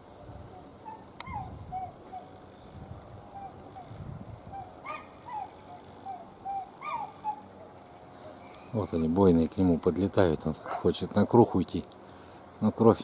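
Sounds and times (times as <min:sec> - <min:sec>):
wind rumbling on microphone: 0:00.1 - 0:05.4
bird calling: 0:00.4 - 0:08.9.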